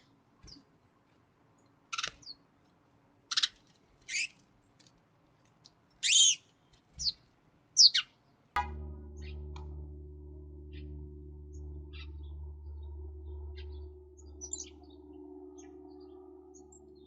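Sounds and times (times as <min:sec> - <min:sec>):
low steady hum: 0:08.6 - 0:17.0
chickadees chirping: 0:13.5 - 0:17.0.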